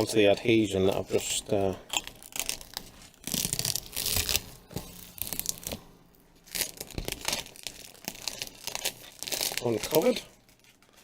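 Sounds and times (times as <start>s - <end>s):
plastic film peeling off glass: 1.9s - 5.8s, 6.4s - 11.0s.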